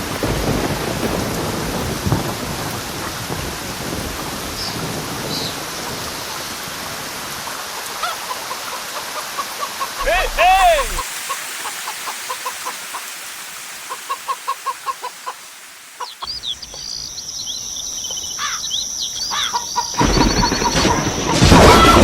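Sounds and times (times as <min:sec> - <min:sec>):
loud rushing hiss: 0:10.0 - 0:16.4
small birds chirping: 0:13.8 - 0:20.9.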